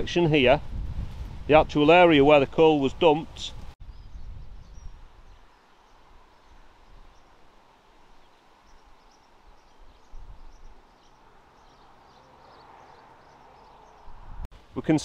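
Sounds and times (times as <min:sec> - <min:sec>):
outdoor background noise: 0:00.0 - 0:15.0
small birds chirping: 0:03.5 - 0:14.5.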